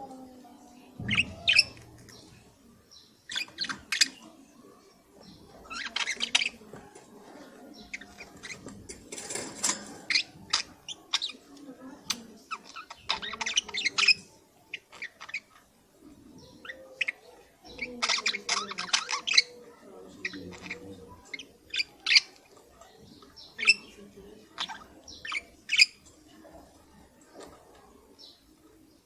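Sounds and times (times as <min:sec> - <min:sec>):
budgerigars chirping: 0:01.0 - 0:04.3, 0:05.6 - 0:06.6, 0:12.5 - 0:15.6, 0:16.5 - 0:22.4, 0:23.2 - 0:26.0.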